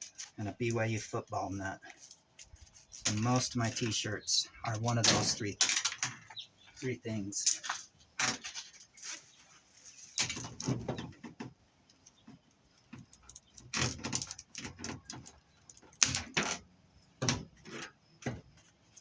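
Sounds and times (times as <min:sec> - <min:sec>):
scrap metal clinking and scraping: 0:04.9 - 0:10.8.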